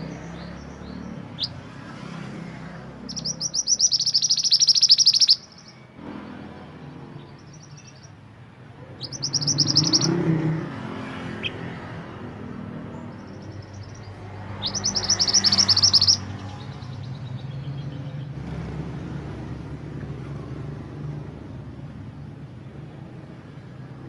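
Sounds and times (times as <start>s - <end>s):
songbird trilling: 0.0s - 1.7s, 3.0s - 5.9s, 7.2s - 8.2s, 8.9s - 10.7s, 12.9s - 18.3s.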